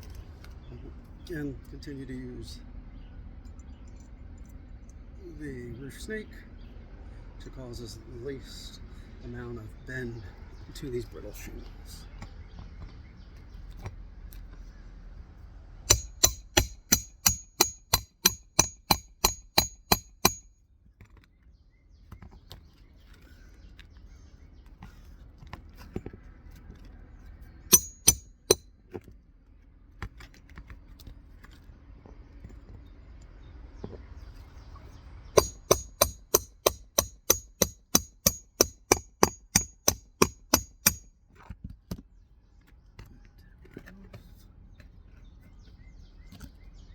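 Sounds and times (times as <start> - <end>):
hammer striking nails: 15.9 - 20.5, 27.7 - 28.6, 35.4 - 41.1.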